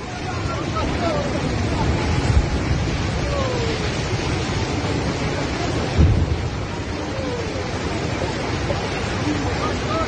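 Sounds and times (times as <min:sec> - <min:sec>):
floodwater rushing roar: 0:00.0 - 0:10.0
low thump: 0:06.0 - 0:06.4.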